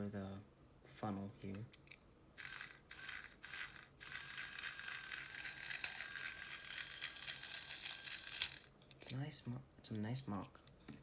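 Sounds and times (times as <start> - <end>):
toy train motor whirring: 2.4 - 8.7.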